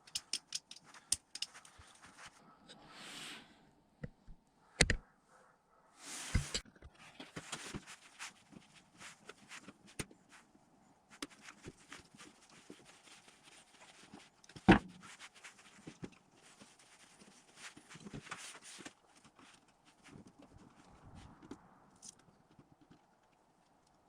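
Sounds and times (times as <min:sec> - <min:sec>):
small clicks and knocks: 0:00.0 - 0:02.1.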